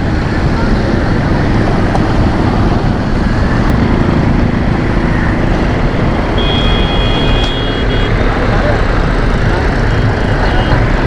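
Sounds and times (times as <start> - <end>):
motorcycle riding on wet street: 0.0 - 11.0.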